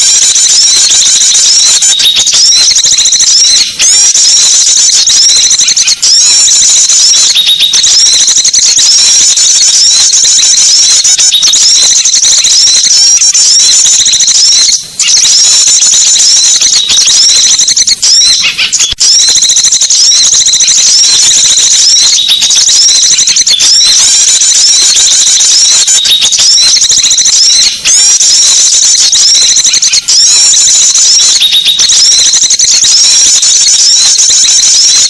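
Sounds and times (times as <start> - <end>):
songbirds chirping and trilling: 18.2 - 19.0.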